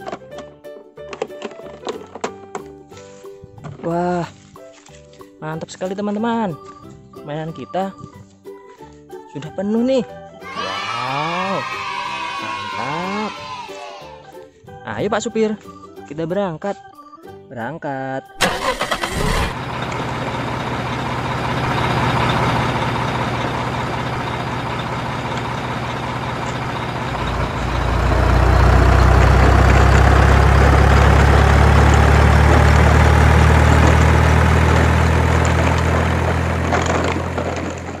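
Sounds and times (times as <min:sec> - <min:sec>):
heavy truck engine running: 0:18.4 - 0:38.0.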